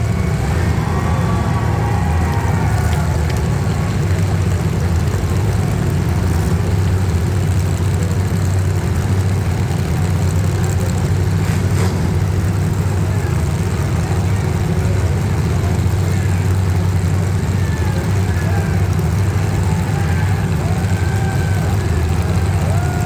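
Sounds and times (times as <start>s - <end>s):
car engines droning: 0.0s - 23.0s.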